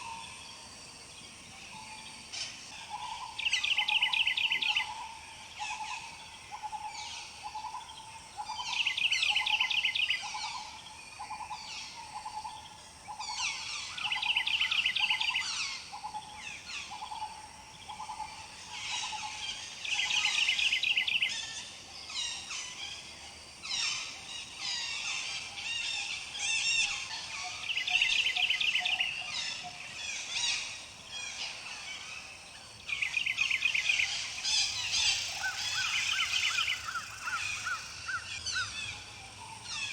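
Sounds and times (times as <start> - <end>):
bird rapid trill: 33.9 - 37.9.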